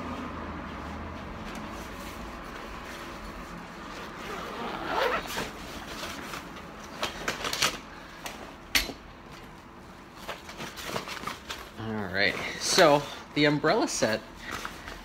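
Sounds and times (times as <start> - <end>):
fabric bag rustling: 3.8 - 6.2
zip sweep: 4.0 - 5.5.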